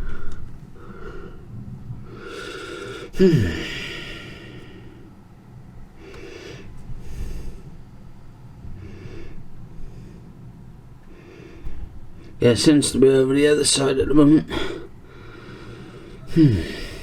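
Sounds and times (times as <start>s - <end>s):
man breathing: 0.0s - 5.3s, 5.9s - 12.4s, 14.5s - 17.0s
man sighing: 2.5s - 4.8s, 16.2s - 17.0s.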